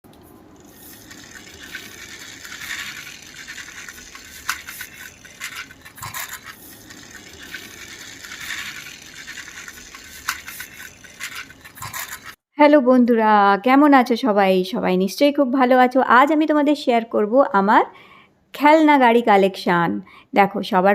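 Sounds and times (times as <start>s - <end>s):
small hard objects clicking: 0.6s - 12.4s.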